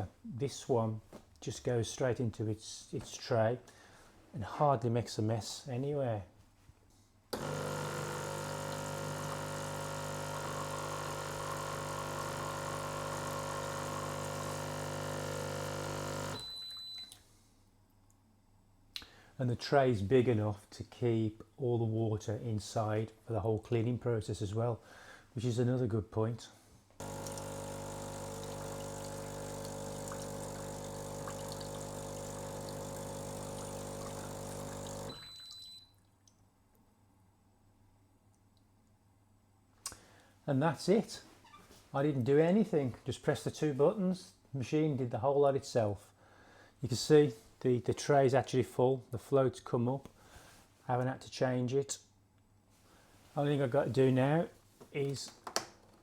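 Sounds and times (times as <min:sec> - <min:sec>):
water flowing through machine: 0:07.4 - 0:16.4, 0:27.0 - 0:35.4
espresso machine pump humming: 0:07.4 - 0:16.6, 0:27.0 - 0:35.3
water running into drip tray: 0:27.0 - 0:35.2.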